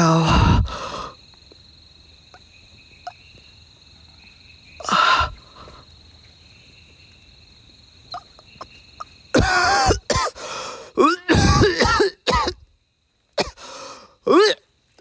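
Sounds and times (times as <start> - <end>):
person's sharp breath: 0.0 - 1.2, 4.8 - 5.8, 10.4 - 11.6, 13.6 - 14.2
night insects chirring: 0.0 - 15.0.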